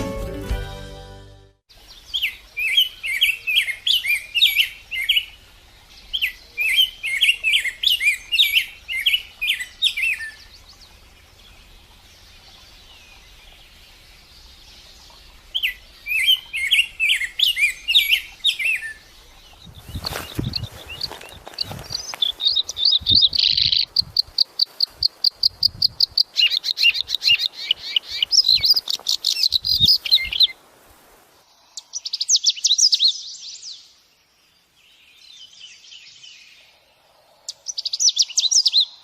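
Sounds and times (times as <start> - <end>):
songbird chirping: 0.0 - 30.7, 31.3 - 39.0.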